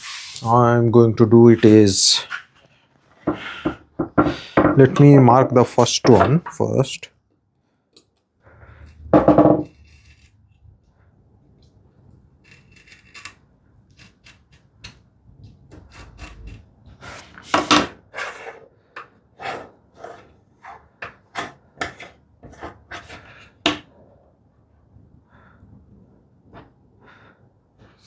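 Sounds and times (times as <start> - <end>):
knife scratching wood: 9.6 - 10.4, 12.4 - 15.0, 15.7 - 18.6.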